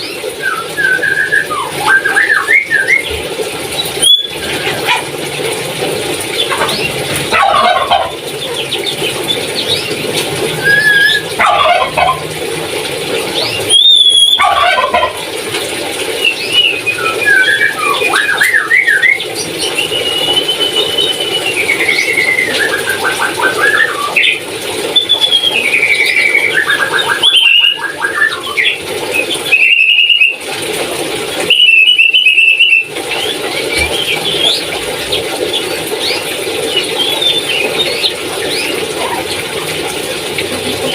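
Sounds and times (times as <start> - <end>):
parrot calling: 6.4 - 12.3, 13.4 - 15.2
parrot screeching: 10.6 - 12.2.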